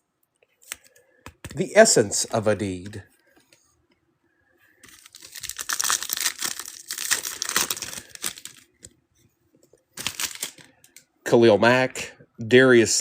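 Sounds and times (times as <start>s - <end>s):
foil wrapper tearing and crinkling: 4.8s - 8.7s, 10.0s - 10.7s.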